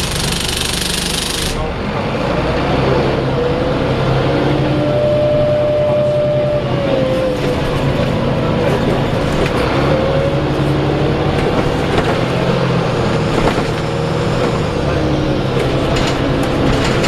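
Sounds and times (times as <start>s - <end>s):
diesel bus engine rumbling: 0.0s - 17.0s
engine whine: 0.0s - 17.0s
engine banging: 3.5s - 17.0s.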